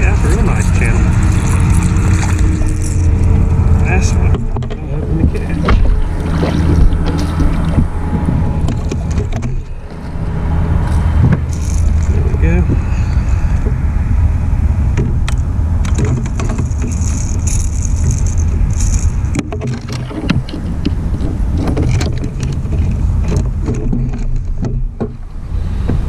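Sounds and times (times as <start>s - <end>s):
low rumble: 0.0s - 26.0s
handling clicks and knocks: 3.9s - 10.1s, 15.0s - 26.0s.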